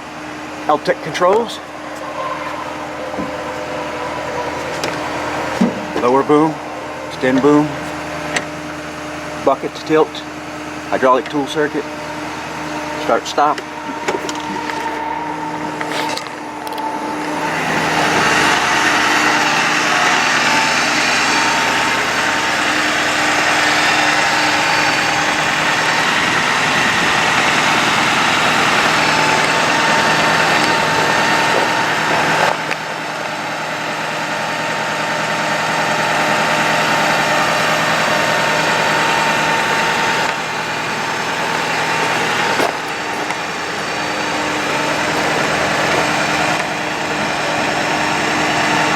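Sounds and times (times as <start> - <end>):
truck engine with hydraulic pump: 0.0 - 48.9.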